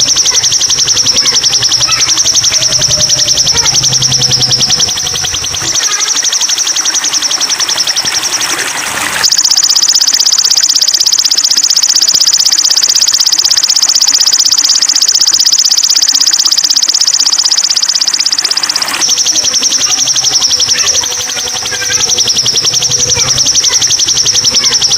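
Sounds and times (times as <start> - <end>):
bird singing rapid high trill: 0.0 - 8.6.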